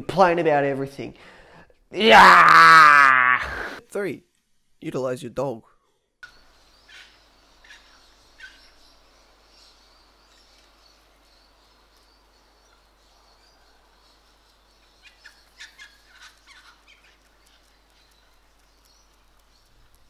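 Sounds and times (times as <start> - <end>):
bird calls and chirps: 6.2 - 20.0.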